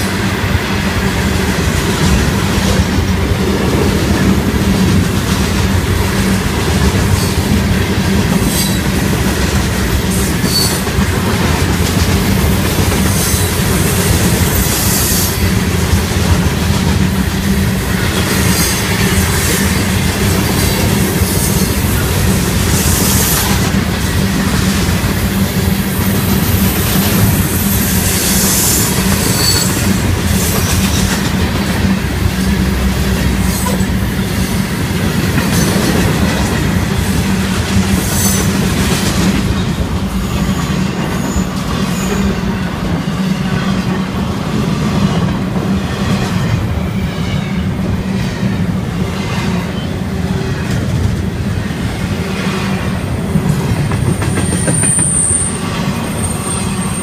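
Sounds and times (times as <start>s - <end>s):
freight train wheels rumbling: 0.0s - 57.0s
clickety-clack over rail joints: 0.9s - 57.0s
wheels squealing: 26.4s - 31.2s.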